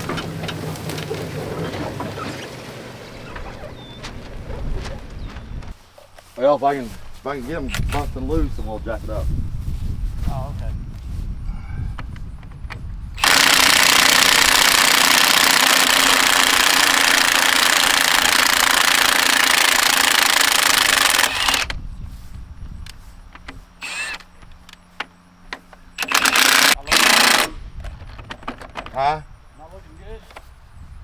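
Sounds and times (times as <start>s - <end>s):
clicks and knocks: 0.0s - 5.8s
impact wrench hammering: 13.2s - 21.7s.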